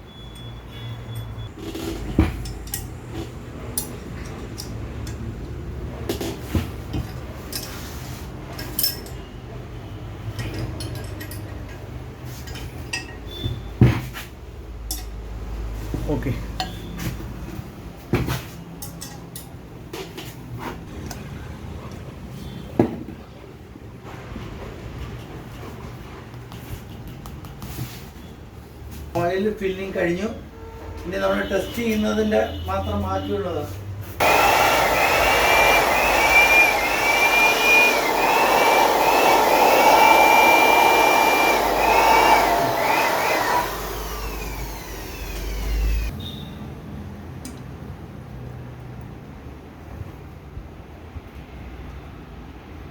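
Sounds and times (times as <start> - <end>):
turbocharger whistling whine: 34.2 - 46.1.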